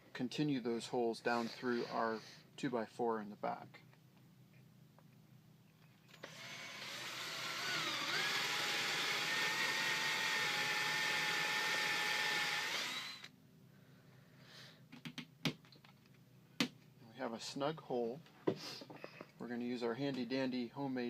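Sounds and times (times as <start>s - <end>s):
power drill boring into wood: 6.2s - 13.3s.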